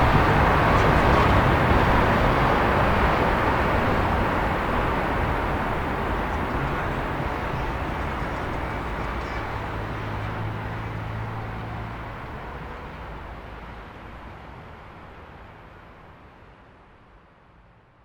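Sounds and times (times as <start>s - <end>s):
low engine drone: 0.0s - 13.7s
distant traffic noise: 0.0s - 15.9s.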